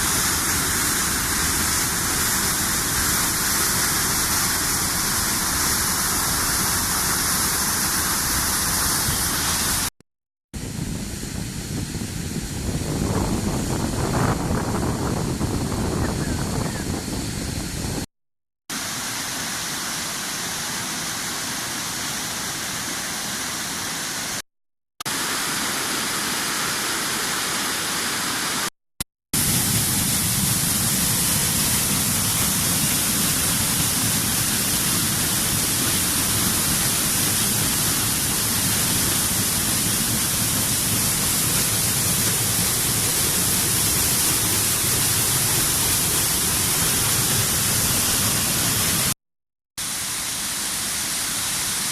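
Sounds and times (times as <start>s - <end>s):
waterfall rushing: 0.0s - 9.9s, 25.1s - 28.7s, 29.4s - 49.2s, 49.8s - 51.9s.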